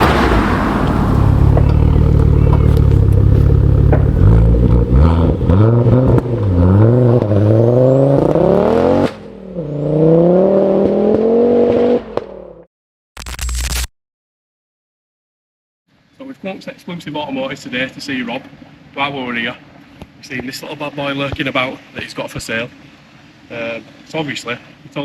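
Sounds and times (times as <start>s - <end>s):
car engine accelerating hard: 0.0s - 12.5s.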